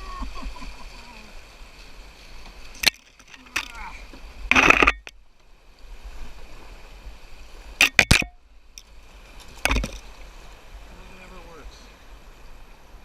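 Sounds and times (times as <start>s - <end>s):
faint river water: 0.0s - 13.0s
paddle knocks and splashes: 9.3s - 10.2s.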